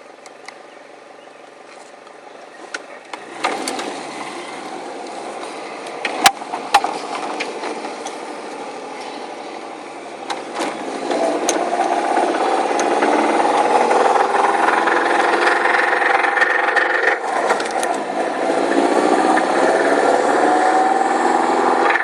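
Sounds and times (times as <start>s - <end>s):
car engine starting and idling: 0.0s - 22.0s
sharp clicks: 10.3s - 14.2s.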